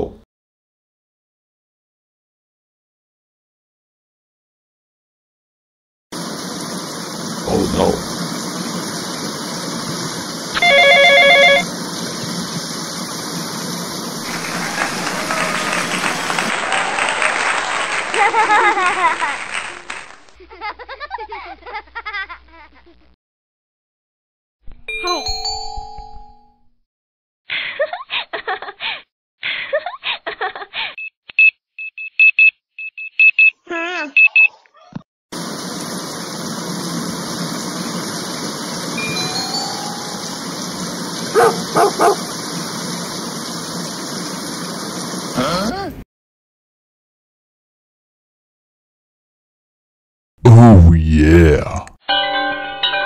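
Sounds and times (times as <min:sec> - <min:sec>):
short high beeps: 0:10.6 - 0:11.6
warbling electronic ring: 0:10.6 - 0:11.6, 0:39.0 - 0:40.5.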